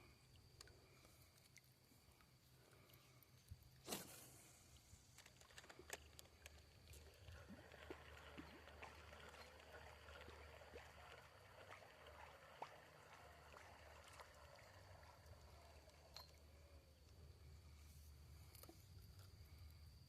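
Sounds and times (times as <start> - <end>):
small clicks: 5.1 - 6.8
faint steady high tone: 14.2 - 18.1.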